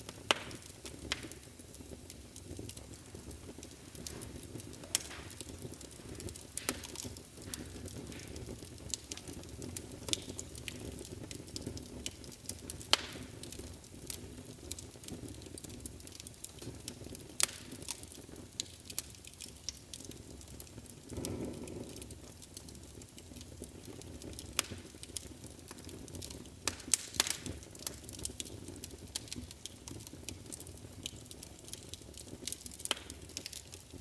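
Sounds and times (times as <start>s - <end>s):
low rush of flame: 0.0s - 15.4s, 20.8s - 27.6s
fire crackling and popping: 0.0s - 34.0s.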